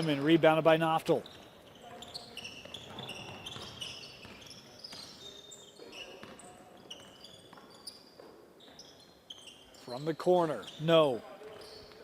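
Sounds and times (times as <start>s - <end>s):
sneakers squeaking on gym floor: 0.0s - 12.0s
basketball bouncing: 2.6s - 5.1s, 6.2s - 6.4s.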